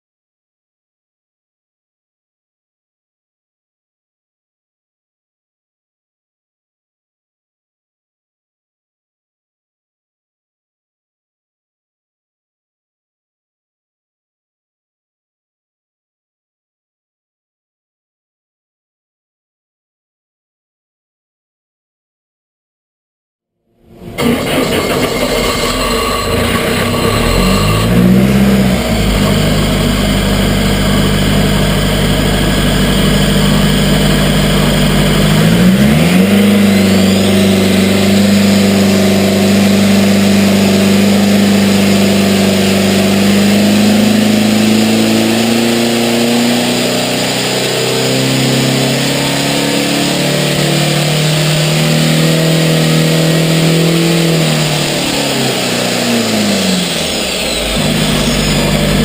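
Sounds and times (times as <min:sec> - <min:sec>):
engine revving: 0:23.8 - 0:59.0.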